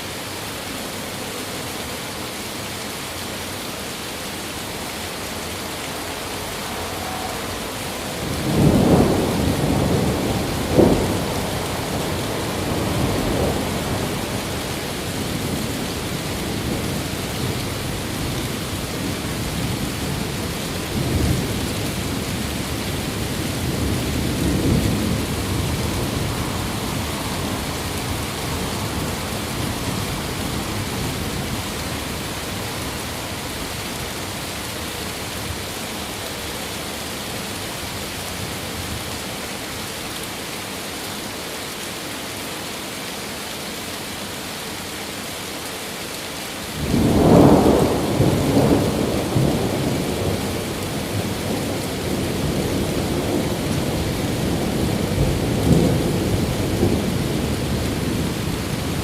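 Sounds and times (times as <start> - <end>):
heavy rain hissing: 0.0 - 59.0
thunder rumbling: 5.6 - 18.3, 19.0 - 33.7, 46.8 - 59.0.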